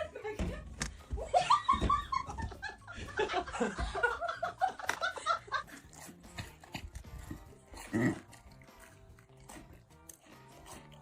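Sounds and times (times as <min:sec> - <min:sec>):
people laughing: 0:00.0 - 0:06.2.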